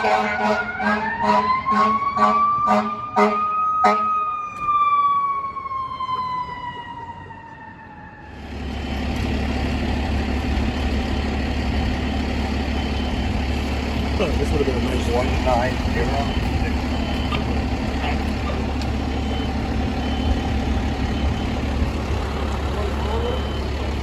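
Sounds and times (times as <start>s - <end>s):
air horn blasting: 0.0s - 4.1s
fire engine mechanical siren: 0.0s - 24.0s
diesel engine low rumble: 5.0s - 24.0s.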